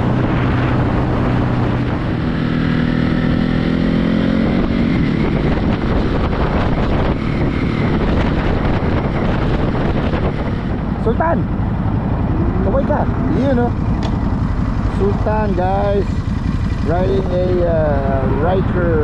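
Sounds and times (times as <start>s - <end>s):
wind on microphone: 0.0s - 14.3s
motorcycle engine running: 0.0s - 19.0s.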